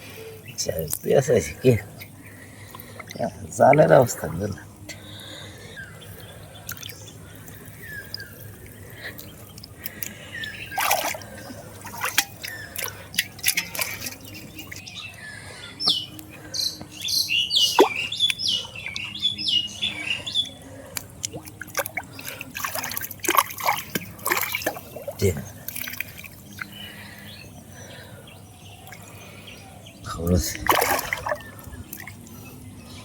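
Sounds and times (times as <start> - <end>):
birds chirping: 0.0 - 33.0
water splashing and dripping: 6.6 - 14.8, 20.9 - 26.8, 30.4 - 32.3.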